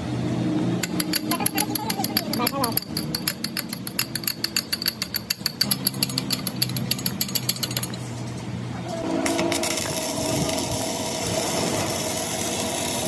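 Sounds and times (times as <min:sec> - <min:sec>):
machine hum: 0:00.0 - 0:13.0
rapid tapping: 0:00.8 - 0:08.0.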